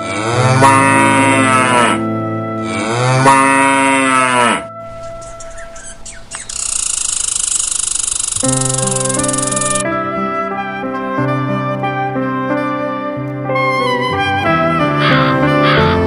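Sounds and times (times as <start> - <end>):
cow mooing: 0.0 - 6.0.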